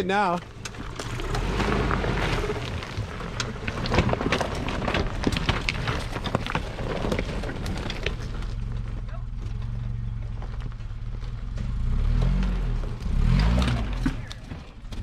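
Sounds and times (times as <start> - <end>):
crackles and ticks: 0.0 - 11.7
off-road vehicle engine running: 0.0 - 15.0.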